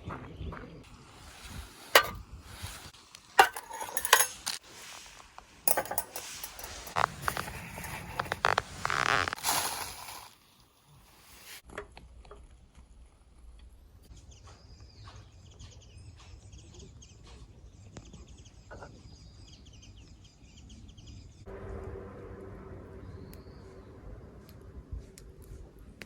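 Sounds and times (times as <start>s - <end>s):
quiet outdoor ambience: 0.6s - 26.0s
small birds chirping: 14.1s - 21.4s.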